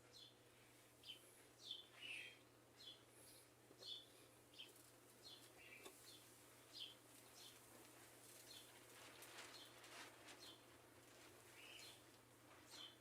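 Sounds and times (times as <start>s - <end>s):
faint bird chirps: 1.0s - 7.6s, 11.5s - 12.0s.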